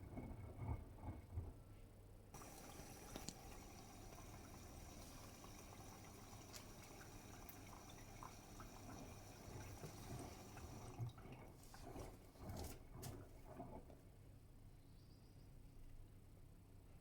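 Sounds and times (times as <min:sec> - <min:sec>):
washing machine water sloshing: 0:02.4 - 0:14.2
soft bumps in washing machine: 0:08.8 - 0:11.2.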